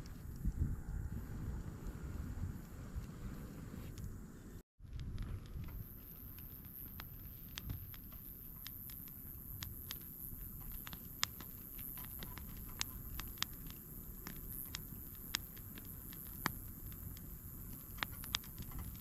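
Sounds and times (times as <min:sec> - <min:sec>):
low steady rumble: 0:00.0 - 0:06.8
campfire crackling and popping: 0:04.9 - 0:19.0.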